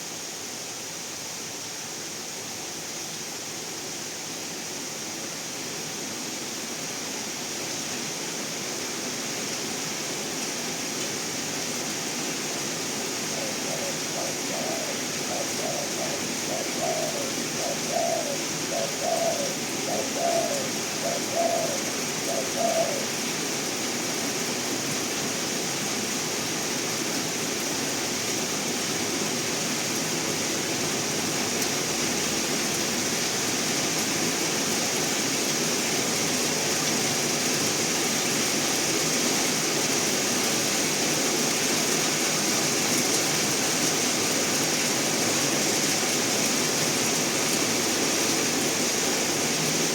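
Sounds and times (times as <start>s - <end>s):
steady rain-like hiss: 0.0s - 49.9s
dove cooing: 13.2s - 23.2s.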